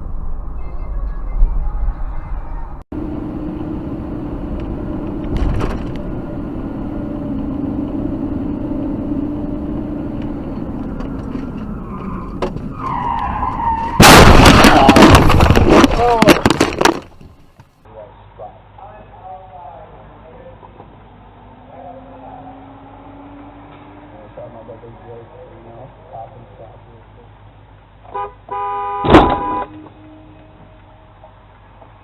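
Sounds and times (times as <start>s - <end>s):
car road noise: 0.0s - 32.0s
tyre squeal: 11.6s - 14.1s
loud crash: 13.8s - 17.1s.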